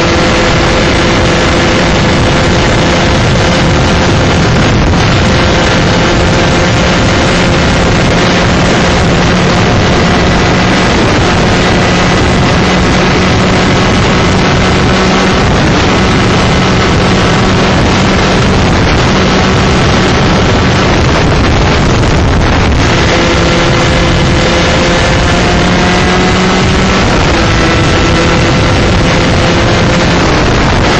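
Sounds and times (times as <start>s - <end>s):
kart engine at high revs: 0.0s - 30.9s
wind buffeting microphone: 0.0s - 30.9s.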